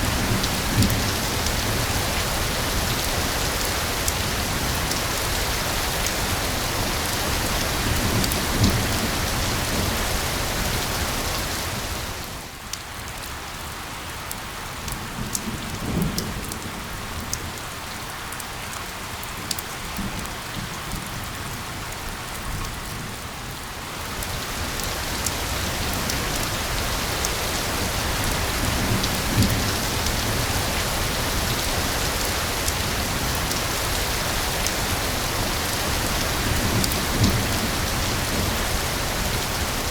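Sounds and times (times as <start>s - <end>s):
rain hiss: 0.0s - 39.9s
raindrops ticking: 24.1s - 38.9s.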